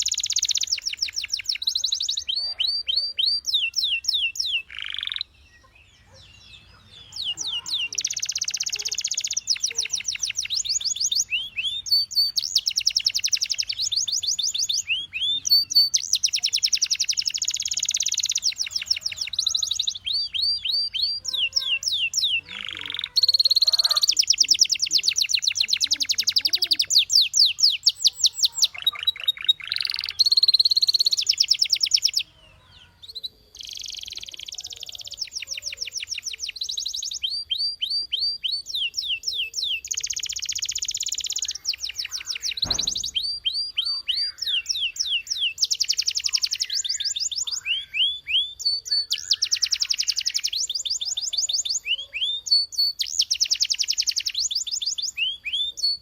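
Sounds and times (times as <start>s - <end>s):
canary singing trills: 0.0s - 56.0s
short knock: 42.6s - 43.2s.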